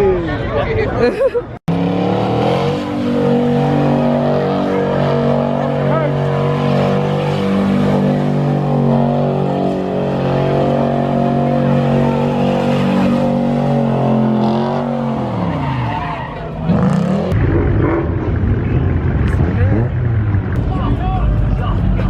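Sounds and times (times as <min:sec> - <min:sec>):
car engine revving: 0:01.7 - 0:22.0
tyres squealing: 0:09.6 - 0:16.7
loud rush of noise: 0:17.2 - 0:22.0.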